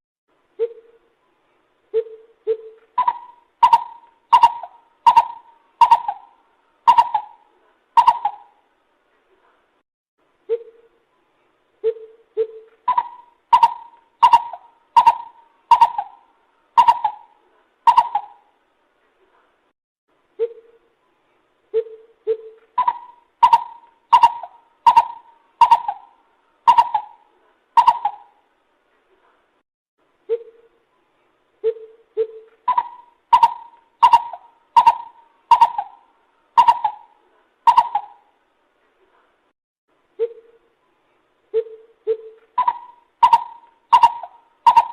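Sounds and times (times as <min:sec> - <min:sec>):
coucal calling: 0:01.9 - 0:08.6, 0:11.8 - 0:18.5, 0:21.8 - 0:28.4, 0:31.6 - 0:38.3, 0:41.5 - 0:44.9.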